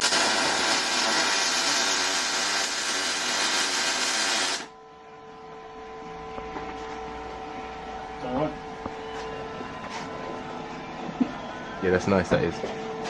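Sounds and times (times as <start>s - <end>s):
power tool running loudly: 0.0s - 4.7s.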